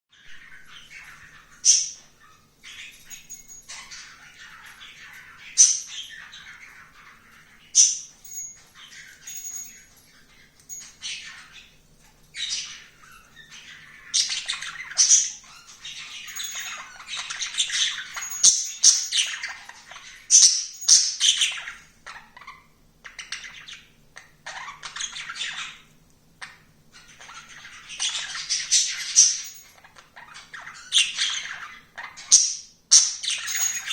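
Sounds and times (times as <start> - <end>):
bird squeaking and chirping: 0.2 - 9.8, 12.4 - 22.7, 27.0 - 33.9.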